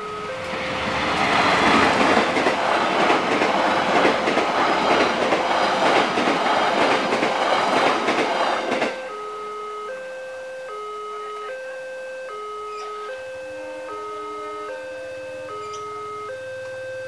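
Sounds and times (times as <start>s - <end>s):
crossing alarm alternating tones: 0.0s - 17.0s
train wheels clattering over rails: 0.4s - 9.1s.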